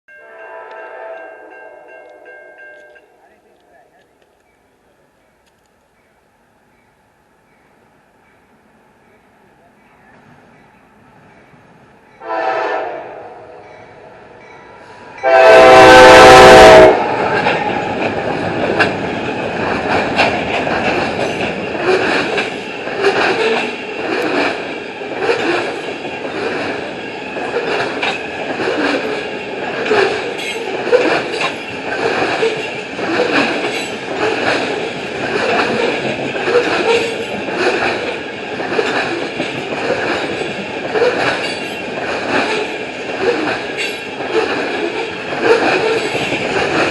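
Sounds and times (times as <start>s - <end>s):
locomotive horn blast: 0.2s - 2.3s, 12.2s - 13.6s, 15.2s - 17.2s
train wheels clicking rhythmically: 16.9s - 46.9s.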